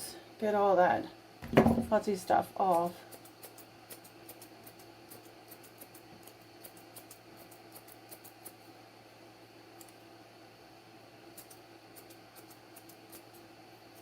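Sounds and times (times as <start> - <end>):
shears snipping hair: 2.0 - 8.6, 11.3 - 14.0.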